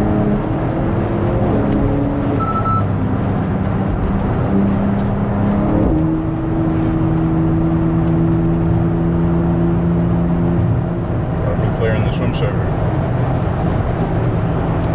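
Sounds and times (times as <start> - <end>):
car engine running: 0.0 - 14.9
road and tyre noise: 0.0 - 14.9.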